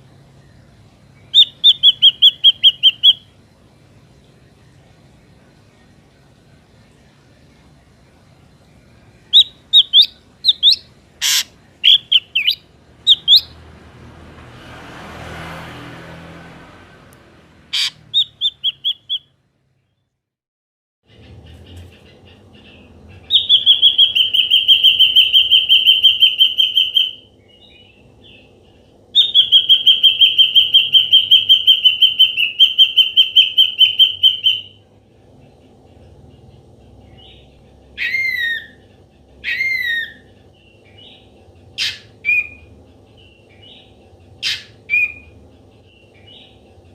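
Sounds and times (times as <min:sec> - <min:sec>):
bird fast pulsed trills: 0:01.2 - 0:03.4, 0:09.2 - 0:13.6, 0:22.1 - 0:34.9
bird whistled chirps: 0:01.3 - 0:03.3, 0:09.3 - 0:13.5, 0:17.8 - 0:19.3, 0:23.3 - 0:27.3, 0:29.2 - 0:34.8, 0:38.0 - 0:38.8, 0:39.4 - 0:40.3, 0:41.8 - 0:42.7, 0:44.4 - 0:45.4.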